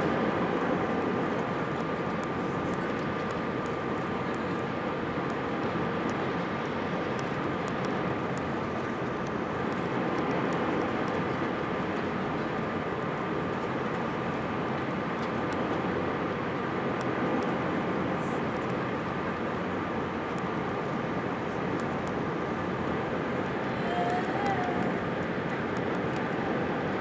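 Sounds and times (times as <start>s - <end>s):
airliner cabin noise: 18.6s - 27.0s
thin steady whine: 21.5s - 26.8s.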